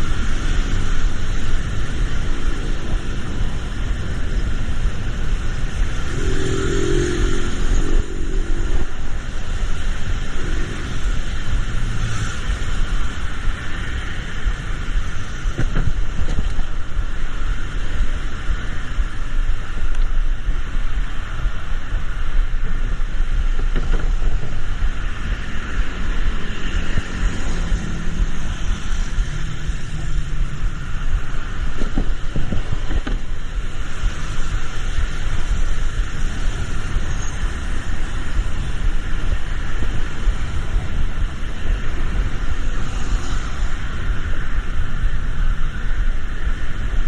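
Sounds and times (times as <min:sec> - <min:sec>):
tyres hissing on wet road: 0:00.0 - 0:47.0
vehicle rumble: 0:00.0 - 0:47.0.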